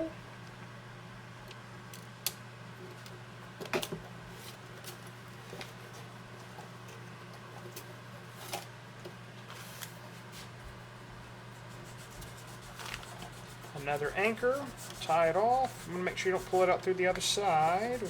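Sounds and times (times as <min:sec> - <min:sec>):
steady low hum: 0:10.1 - 0:18.0.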